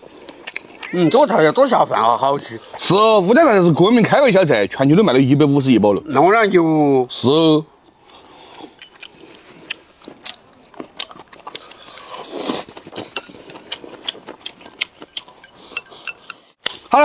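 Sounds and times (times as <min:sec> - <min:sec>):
chewing and lip smacks: 0:00.2 - 0:01.0, 0:07.9 - 0:16.8
small mouth clicks: 0:00.3 - 0:01.0.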